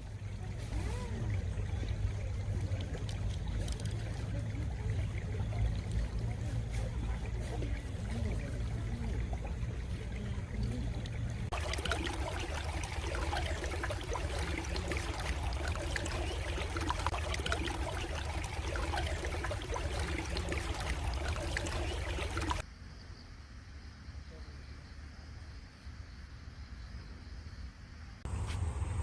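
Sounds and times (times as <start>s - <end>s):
stream water babbling: 0.0s - 22.6s.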